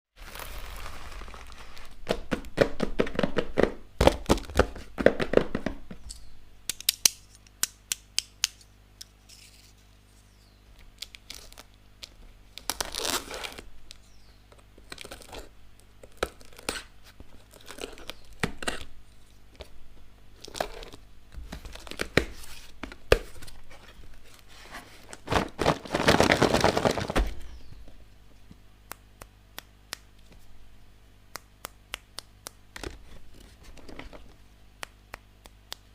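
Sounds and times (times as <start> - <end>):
packaging torn and crinkled: 0.2 - 2.0, 10.9 - 13.7, 14.8 - 18.9, 20.4 - 21.0, 25.1 - 27.2.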